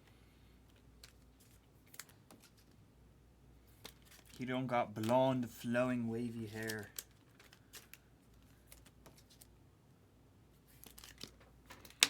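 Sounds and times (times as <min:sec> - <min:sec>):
trading cards clicking and shuffling: 0:03.7 - 0:09.5, 0:10.7 - 0:12.0.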